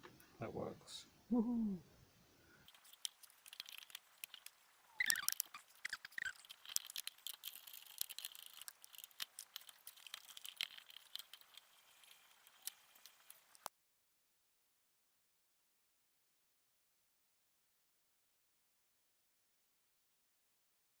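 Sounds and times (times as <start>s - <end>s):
squeaky chirps: 2.7s - 8.7s.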